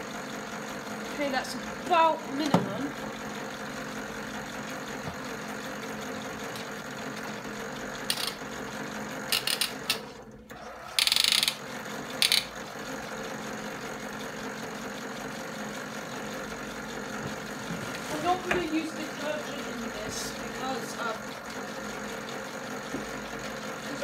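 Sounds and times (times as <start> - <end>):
toy washing machine motor humming: 0.0 - 24.0
gear mechanism clattering: 8.0 - 8.4, 9.3 - 10.2, 10.9 - 12.6.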